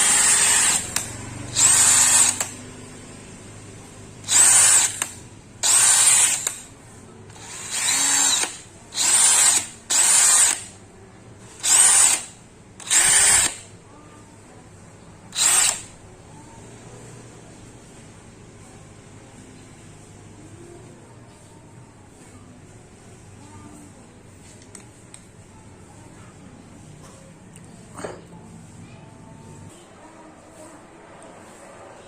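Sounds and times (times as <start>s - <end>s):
cordless drill whining in bursts: 0.0s - 2.6s, 4.2s - 6.6s, 7.3s - 10.7s, 11.6s - 13.6s, 15.4s - 15.9s.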